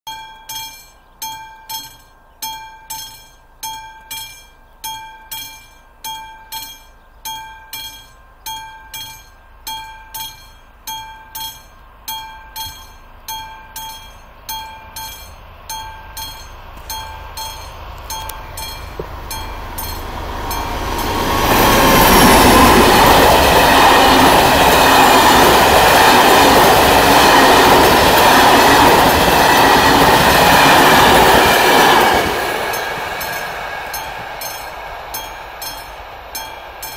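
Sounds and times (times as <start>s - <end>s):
level-crossing warning bell: 0.1s - 36.9s
train passing on rails: 0.1s - 36.9s.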